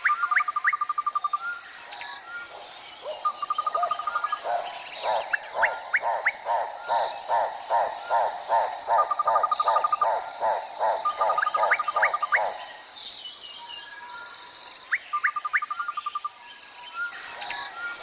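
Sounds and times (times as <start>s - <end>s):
rapid trilling call: 0.0s - 12.8s.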